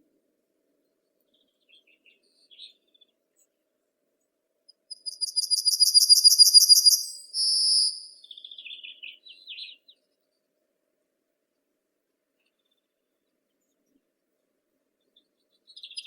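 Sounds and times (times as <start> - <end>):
songbird singing: 0.8 - 3.5, 4.7 - 10.5, 12.4 - 14.0, 15.0 - 16.0
soft low bird twittering: 4.8 - 10.4, 15.0 - 16.0.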